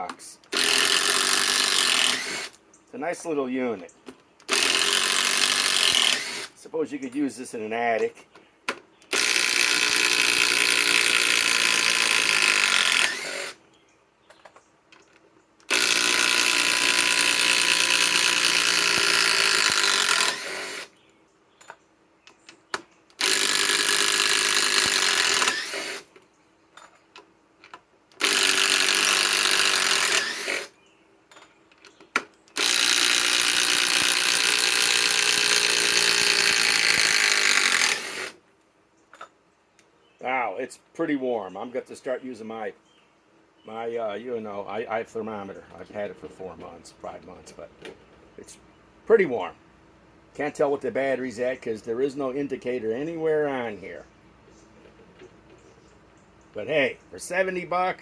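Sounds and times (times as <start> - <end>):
impact driver driving screws into wood: 0.4 - 2.6, 4.4 - 6.6, 8.7 - 13.6, 15.6 - 21.0, 22.7 - 26.2, 28.1 - 30.8, 32.0 - 38.4.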